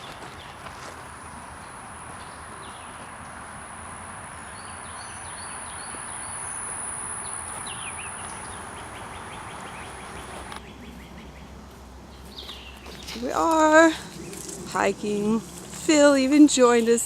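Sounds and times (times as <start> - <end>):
constant hiss: 11.5 - 17.0.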